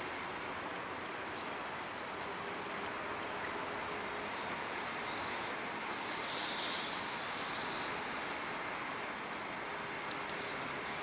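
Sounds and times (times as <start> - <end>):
rushing background noise: 0.0 - 11.0
bird chirping: 1.3 - 1.6, 4.3 - 4.6, 7.6 - 8.2, 10.3 - 10.7.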